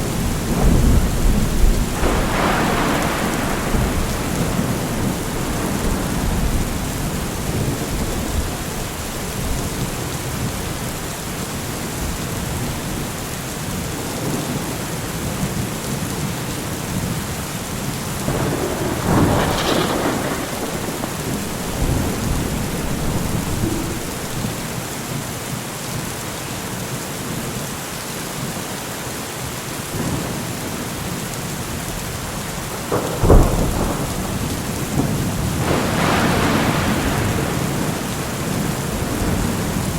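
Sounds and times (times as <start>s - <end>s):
sharp thunderclap: 0.0s - 10.4s, 18.2s - 24.9s, 32.8s - 39.9s
thunder rumbling: 0.0s - 13.0s, 18.1s - 25.2s, 32.2s - 39.9s
rain hissing: 0.0s - 13.4s, 17.8s - 25.5s, 32.2s - 39.9s.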